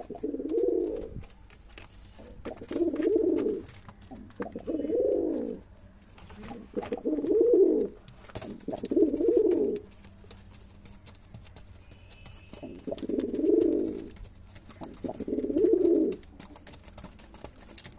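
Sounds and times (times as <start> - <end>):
pigeon cooing: 0.0 - 1.3, 2.2 - 5.6, 6.3 - 17.8
faint clicks and taps: 8.0 - 15.4, 16.0 - 17.9.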